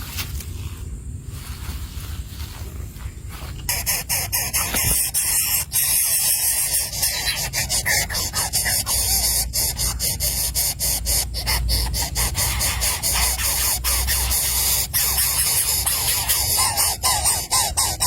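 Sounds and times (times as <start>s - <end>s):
steady hiss: 0.0s - 17.5s
crow nestlings begging calls: 3.7s - 18.0s.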